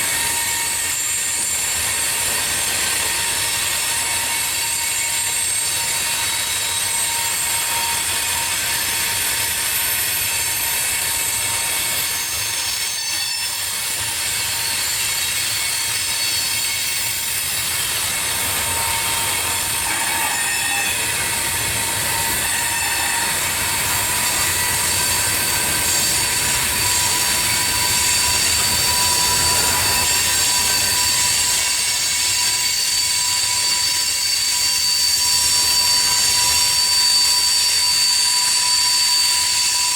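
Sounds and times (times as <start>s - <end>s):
freight train rolling: 0.0s - 39.9s
high-pitched wheel squeal: 3.0s - 39.9s.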